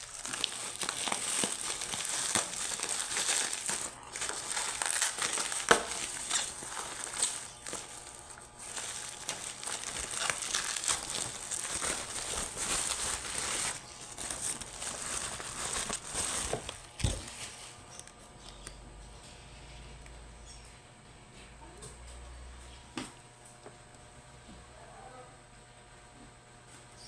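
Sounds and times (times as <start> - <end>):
packaging crinkling: 0.0 - 18.7.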